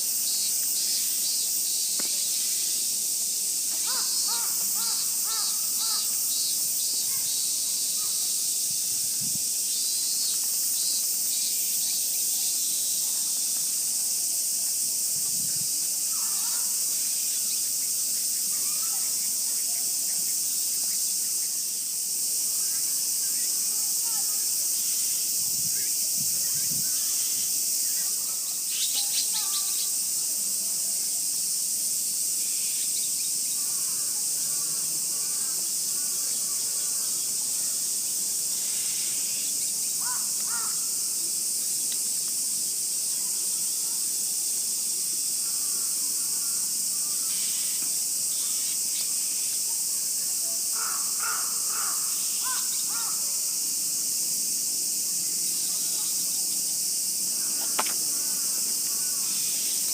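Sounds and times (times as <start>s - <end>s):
cicadas droning: 0.0s - 59.9s
crows cawing: 3.8s - 6.1s, 40.0s - 40.9s, 50.8s - 53.2s.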